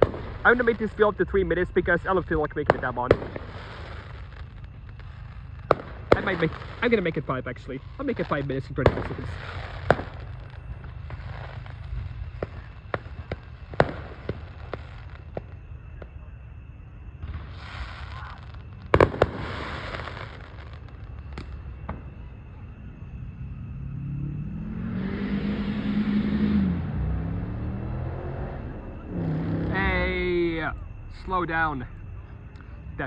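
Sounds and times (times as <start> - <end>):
fireworks crackling pops: 0.0 - 1.2, 2.0 - 16.2, 17.2 - 22.3
fireworks hiss: 0.0 - 15.6, 17.2 - 22.1
loud fireworks bangs: 0.0 - 16.3, 17.2 - 22.3
car engine driving up: 22.8 - 30.9.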